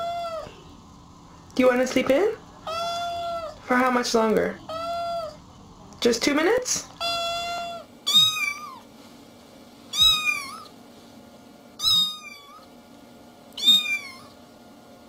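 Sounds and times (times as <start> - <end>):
cat meowing: 0.0 - 0.6, 2.6 - 3.6, 4.7 - 5.4, 7.0 - 8.8, 9.9 - 10.7, 11.8 - 12.7, 13.6 - 14.4.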